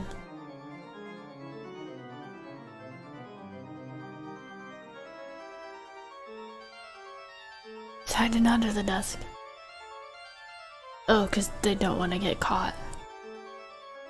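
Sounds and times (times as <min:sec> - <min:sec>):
organ music: 0:00.0 - 0:14.0.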